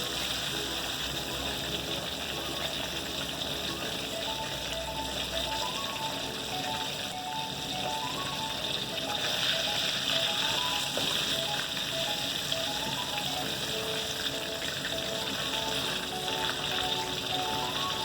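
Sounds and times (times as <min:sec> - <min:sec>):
chicken deep-frying in oil: 0:00.0 - 0:18.0
soft background music: 0:00.0 - 0:18.0.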